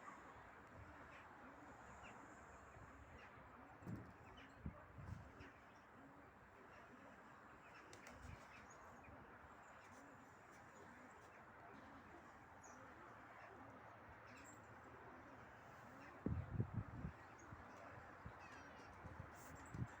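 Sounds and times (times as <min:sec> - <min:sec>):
wind noise: 0:16.2 - 0:17.1.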